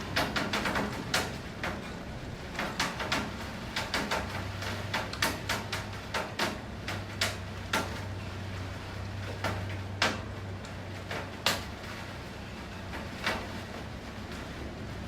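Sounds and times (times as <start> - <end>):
rain drops tapping hard surface: 0.0 - 15.0
steady rain: 0.0 - 15.0.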